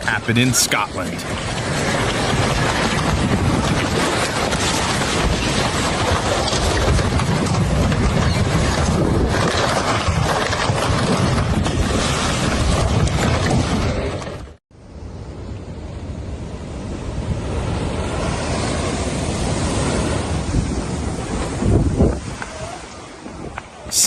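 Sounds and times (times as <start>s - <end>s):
floodwater rushing: 0.0s - 14.1s.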